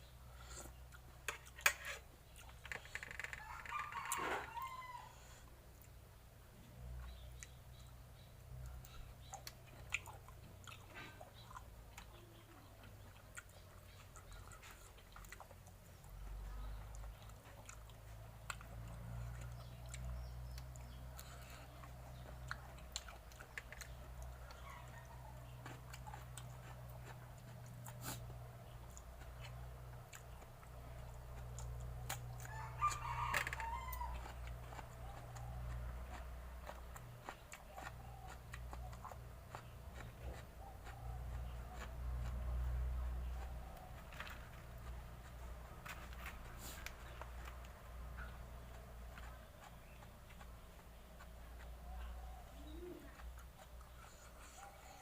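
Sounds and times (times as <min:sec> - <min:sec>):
person chewing: 0:00.3 - 0:03.6, 0:06.9 - 0:55.0
rooster crowing: 0:03.3 - 0:05.4, 0:32.4 - 0:34.4.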